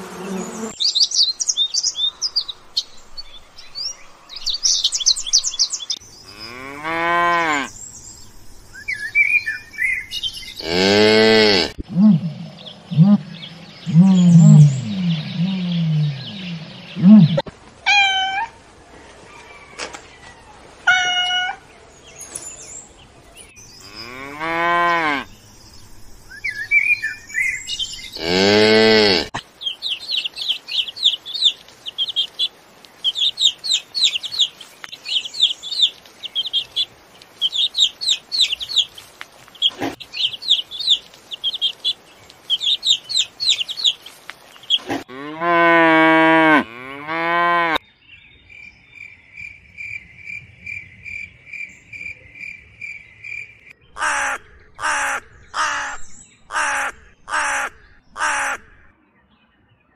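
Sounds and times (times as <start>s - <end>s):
cow mooing: 10.6s - 12.4s, 28.2s - 29.3s, 45.1s - 47.8s.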